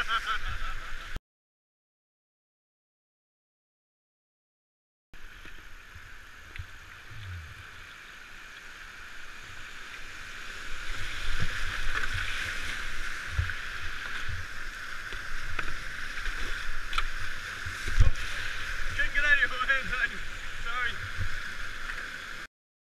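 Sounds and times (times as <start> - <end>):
rushing river water: 5.2 - 22.5.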